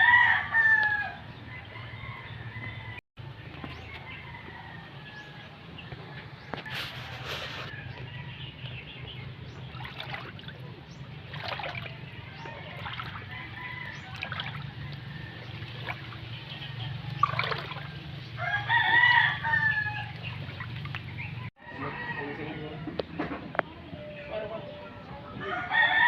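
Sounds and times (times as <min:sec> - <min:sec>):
rooster crowing: 0:00.0 - 0:03.0, 0:18.4 - 0:20.2, 0:21.6 - 0:23.0, 0:25.4 - 0:26.0.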